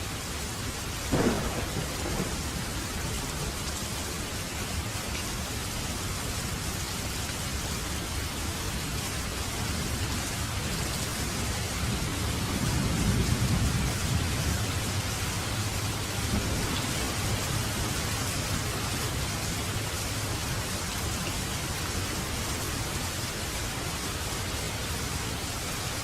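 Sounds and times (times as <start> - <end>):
steady rain falling: 0.0 - 26.0
low thunder rumble: 1.1 - 4.2, 11.2 - 19.9.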